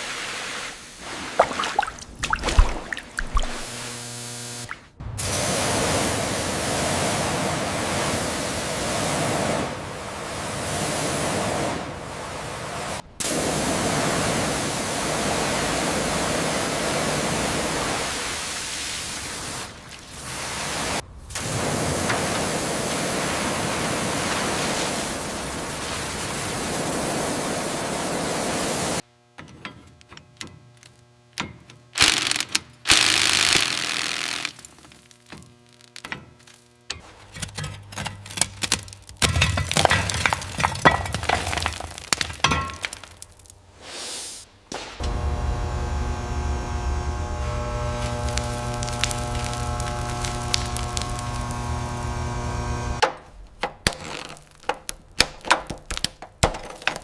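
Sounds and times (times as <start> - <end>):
loud hissing noise: 0.0 - 1.4, 3.6 - 29.0, 32.0 - 34.6, 43.6 - 53.0.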